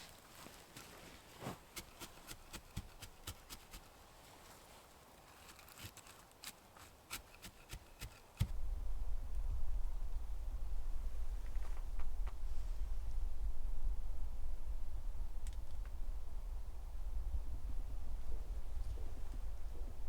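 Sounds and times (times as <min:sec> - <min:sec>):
steady low rumble: 0:08.4 - 0:20.0.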